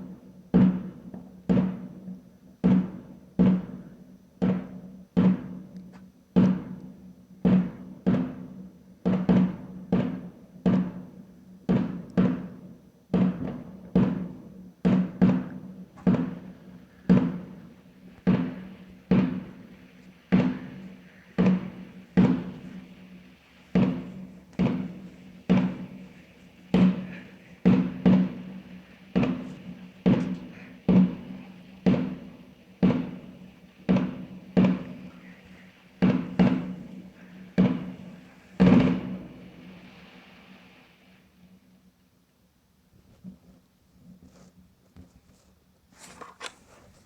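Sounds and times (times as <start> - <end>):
faint steady hum: 11.1 - 47.0
fireworks exploding: 13.2 - 40.7.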